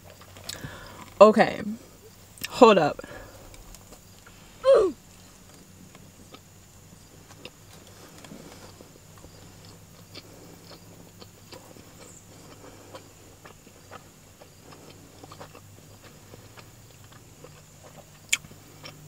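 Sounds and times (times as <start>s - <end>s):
person chewing: 0.0s - 1.2s, 5.4s - 19.0s
low steady hum: 0.0s - 19.0s.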